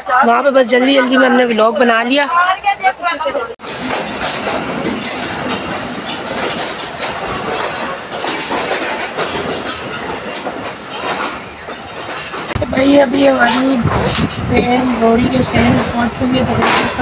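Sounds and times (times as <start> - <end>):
train running rumble: 1.0 - 17.0
wheels clattering over rails: 3.6 - 17.0.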